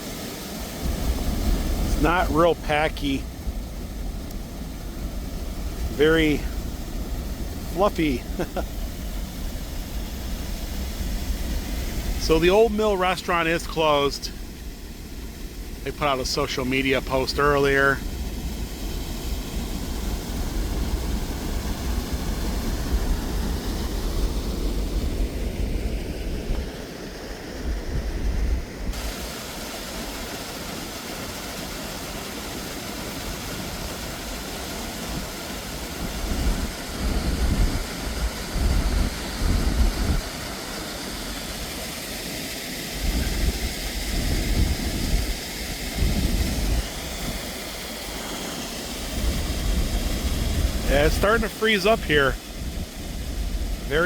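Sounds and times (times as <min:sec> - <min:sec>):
river rushing: 0:00.0 - 0:27.4, 0:28.9 - 0:54.0
wind buffeting microphone: 0:36.0 - 0:40.4, 0:43.0 - 0:47.4, 0:49.2 - 0:51.1.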